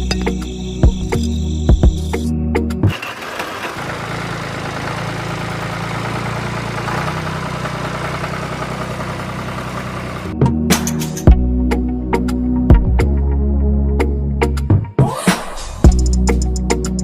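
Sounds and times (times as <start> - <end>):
small engine running with rattle: 2.9 - 10.3.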